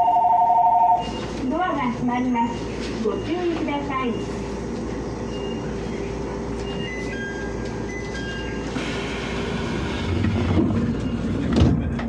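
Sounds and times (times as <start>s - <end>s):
train equipment hum: 0.0s - 12.0s
train doors sliding shut: 8.7s - 12.0s.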